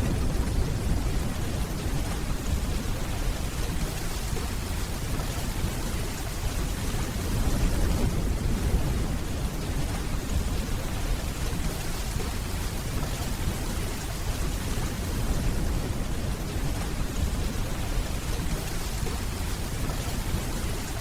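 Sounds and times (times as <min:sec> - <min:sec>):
distant thunder rumbling: 0:00.0 - 0:04.5
steady rainfall: 0:00.0 - 0:21.0.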